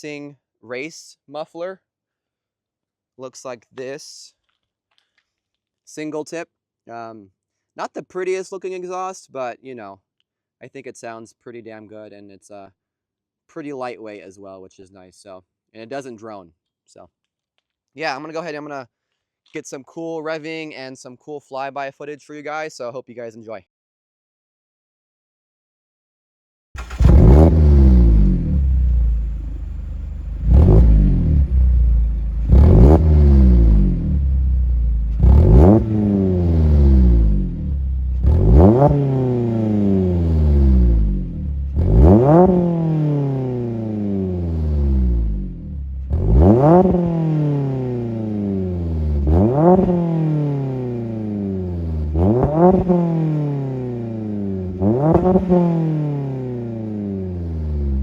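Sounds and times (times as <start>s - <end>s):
car engine revving: 26.8s - 58.0s.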